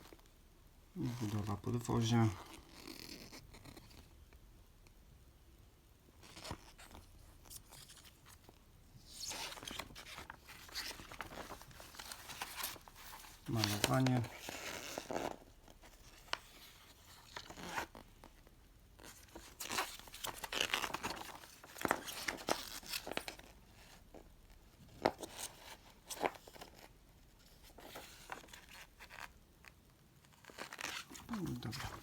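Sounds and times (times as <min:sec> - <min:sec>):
paper rustling and crinkling: 0:06.2 - 0:18.4, 0:19.0 - 0:24.2, 0:24.8 - 0:29.3, 0:30.2 - 0:32.0.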